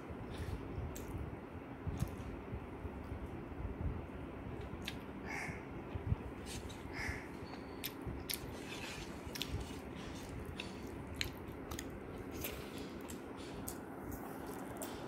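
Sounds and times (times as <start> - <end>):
steady low hum: 0.0 - 15.0
chewing and biting: 7.8 - 15.0.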